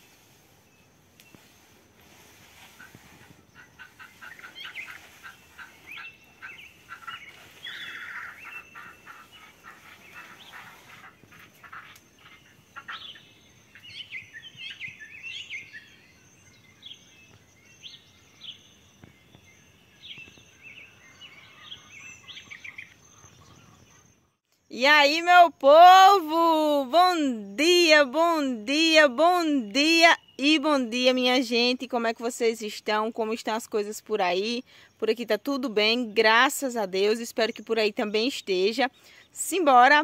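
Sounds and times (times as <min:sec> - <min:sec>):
small birds chirping and singing: 0:00.0 - 0:24.9.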